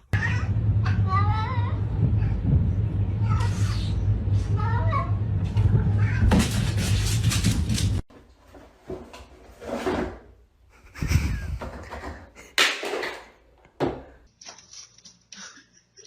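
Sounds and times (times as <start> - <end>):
knocks and bumps in a room: 11.0 - 14.2.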